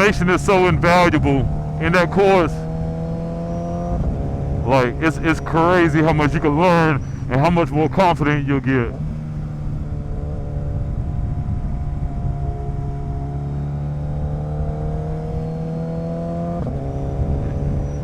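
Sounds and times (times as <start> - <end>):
wind rumble on microphone: 2.6 - 4.7, 8.9 - 18.0.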